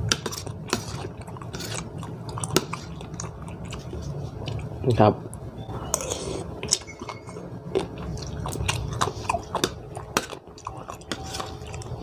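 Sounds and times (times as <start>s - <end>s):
person chewing crunchy food: 0.0s - 4.8s, 5.9s - 12.0s.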